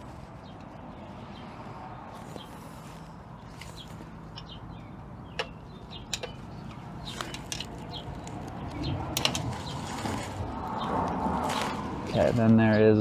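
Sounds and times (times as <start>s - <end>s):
handling and rustling: 2.1s - 12.5s.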